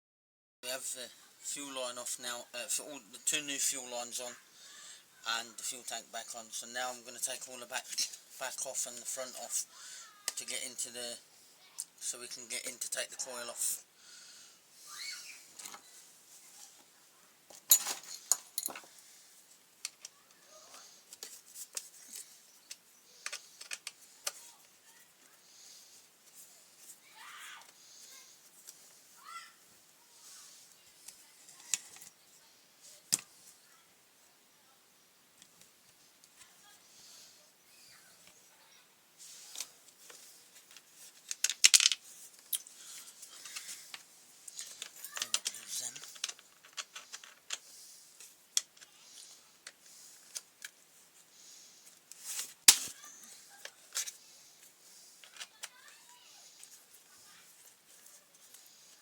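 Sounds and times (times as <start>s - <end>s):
small metal parts clinking: 17.6s - 18.9s, 41.3s - 42.7s, 44.5s - 47.6s.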